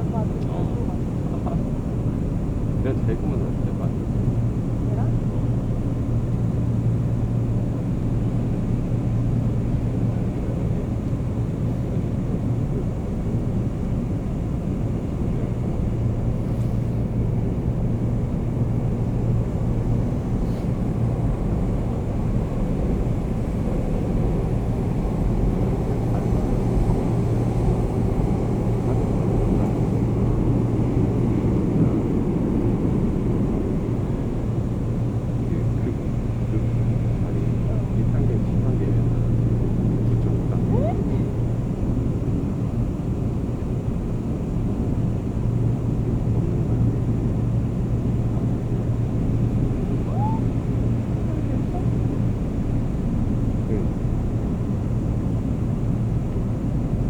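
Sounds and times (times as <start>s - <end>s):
constant low hum: 0.0s - 57.0s.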